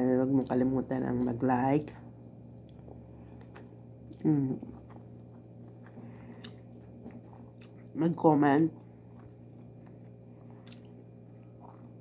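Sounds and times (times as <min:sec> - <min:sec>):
wet chewing mouth clicks: 0:09.1 - 0:12.0.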